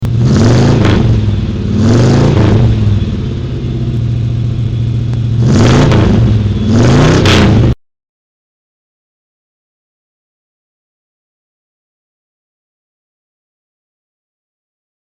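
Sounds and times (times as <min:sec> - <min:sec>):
engine revving: 0:00.0 - 0:07.8.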